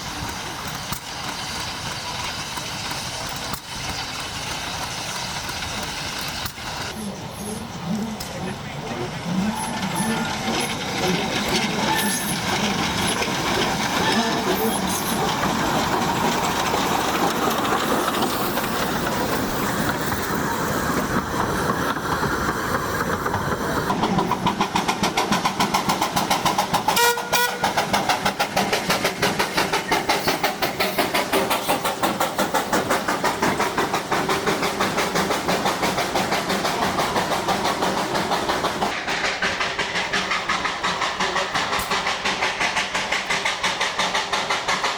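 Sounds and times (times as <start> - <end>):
steam locomotive exhaust chuffs: 0.0 - 44.9
steam locomotive hiss and rumble: 0.0 - 44.9
steam whistle toot: 27.0 - 27.8.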